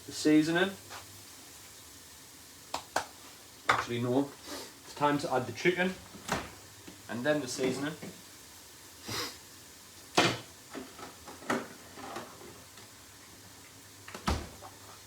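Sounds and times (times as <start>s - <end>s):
kitchen knocks and clatters: 3.7s - 3.9s, 6.0s - 6.6s, 10.1s - 12.7s, 14.1s - 15.0s.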